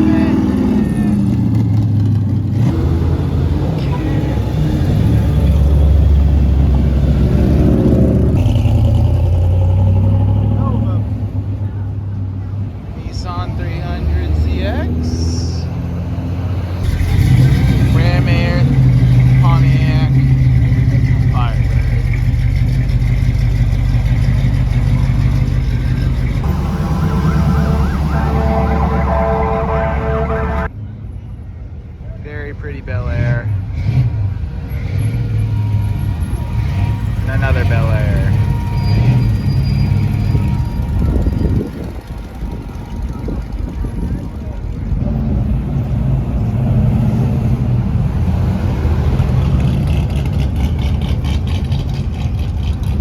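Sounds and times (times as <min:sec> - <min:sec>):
vehicle engine rumbling: 0:00.0 - 0:53.0
emergency siren yelping: 0:26.4 - 0:30.7, 0:35.3 - 0:44.7.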